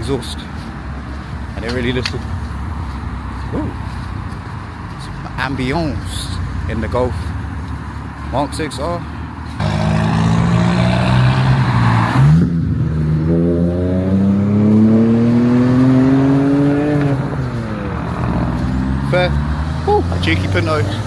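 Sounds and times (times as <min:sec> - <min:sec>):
car engine accelerating: 0:09.6 - 0:21.0.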